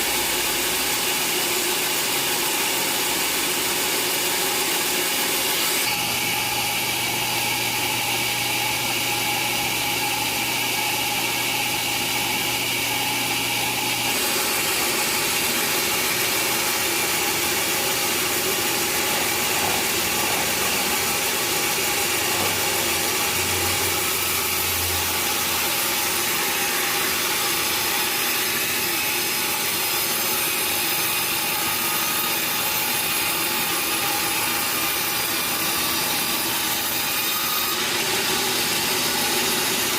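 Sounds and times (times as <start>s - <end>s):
sawmill saw and machinery running: 0.0s - 39.9s.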